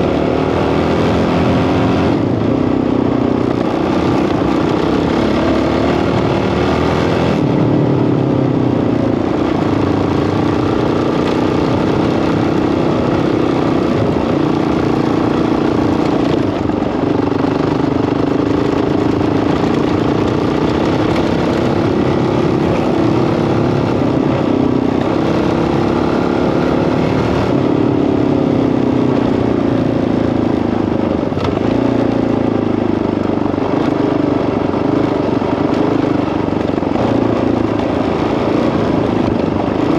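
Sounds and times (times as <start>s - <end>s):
dirt bike engine revving: 3.6s - 7.5s
gear shifts: 9.2s - 25.7s.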